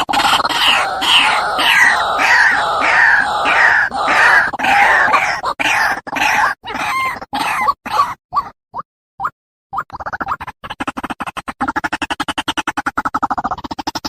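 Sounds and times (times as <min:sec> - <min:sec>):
waterhen croaking calls: 0:00.1 - 0:08.1.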